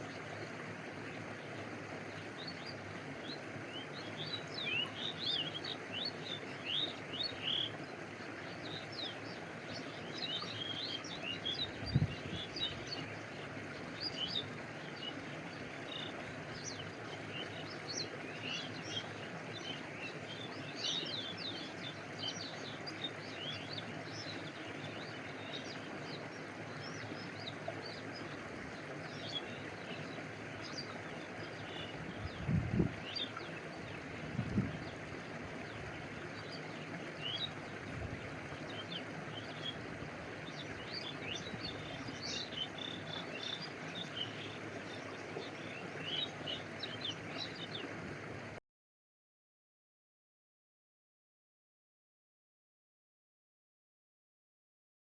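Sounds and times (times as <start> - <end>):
stream water flowing: 0.0 - 48.6
birds chirping: 15.9 - 48.0.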